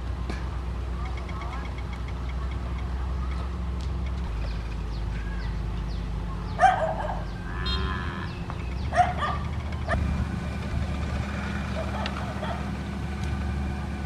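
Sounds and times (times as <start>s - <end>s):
heavy machine engine running: 0.0s - 14.0s
dog barking: 6.5s - 7.3s, 8.9s - 10.1s, 11.7s - 12.7s.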